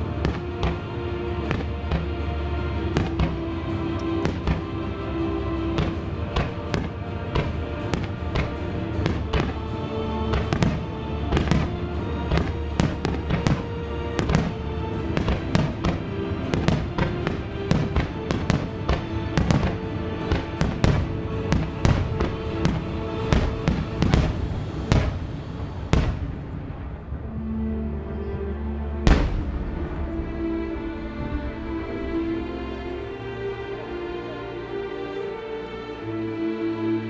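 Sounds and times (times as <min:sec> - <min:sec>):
firework shells bursting: 0:29.1 - 0:30.1.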